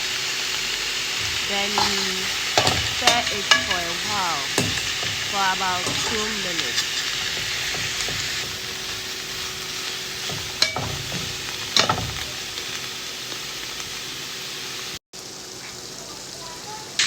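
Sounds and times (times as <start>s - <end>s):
food sizzling in a hot pan: 0.0s - 17.0s
utensil knocking against pan: 1.2s - 12.6s.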